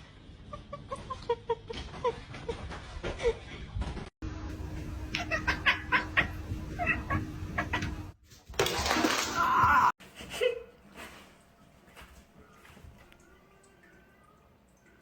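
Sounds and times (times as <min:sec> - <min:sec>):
person laughing: 0:05.1 - 0:08.0.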